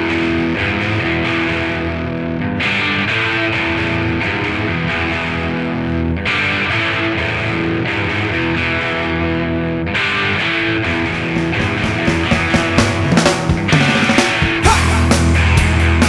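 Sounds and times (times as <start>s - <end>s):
electric guitar chords: 0.0s - 16.0s
heavy bass: 10.8s - 16.0s.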